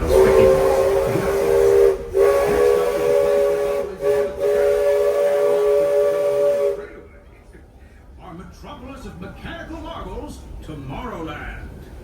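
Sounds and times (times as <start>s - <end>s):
steam locomotive whistle: 0.0s - 7.0s.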